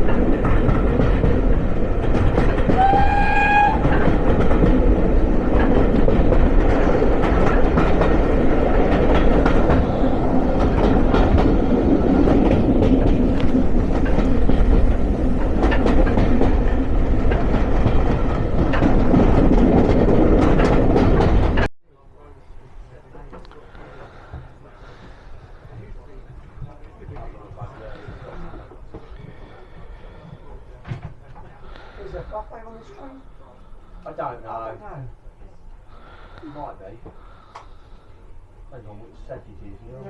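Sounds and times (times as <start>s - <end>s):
clicks of rails and wheels: 0.0s - 21.7s
train rumbling on tracks: 0.0s - 21.7s, 22.4s - 40.0s
train whistle: 2.7s - 4.3s.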